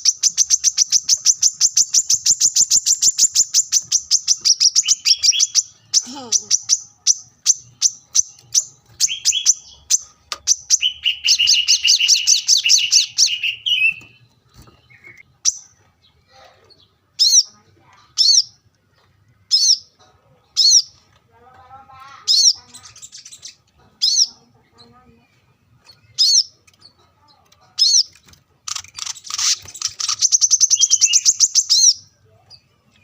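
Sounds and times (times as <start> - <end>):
high sweeping bird notes: 0.0 - 15.7
songbirds chirping and trilling: 0.0 - 33.0.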